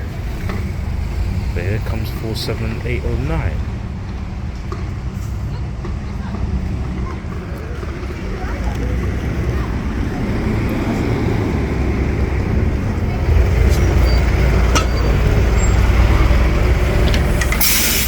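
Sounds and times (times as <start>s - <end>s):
bus diesel engine droning: 0.0s - 18.0s
air brake hiss: 17.2s - 18.0s.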